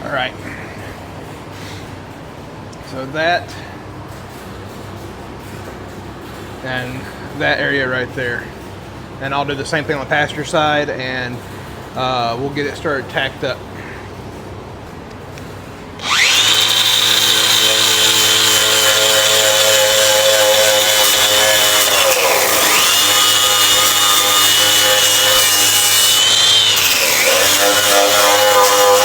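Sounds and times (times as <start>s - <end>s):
angle grinder on metal: 16.0s - 29.0s.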